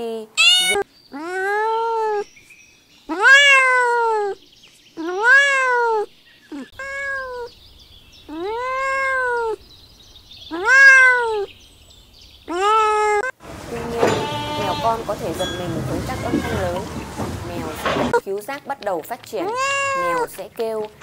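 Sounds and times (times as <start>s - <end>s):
kitten meowing: 0.4s - 2.2s, 3.1s - 4.4s, 5.0s - 6.1s, 6.8s - 7.5s, 8.3s - 9.6s, 10.5s - 11.5s, 19.4s - 20.3s.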